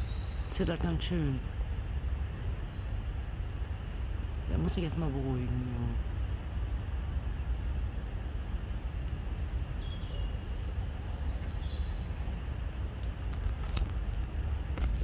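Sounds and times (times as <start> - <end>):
faint bird chirps: 0.0 - 0.9, 9.3 - 12.7
low outdoor rumble: 0.0 - 15.0.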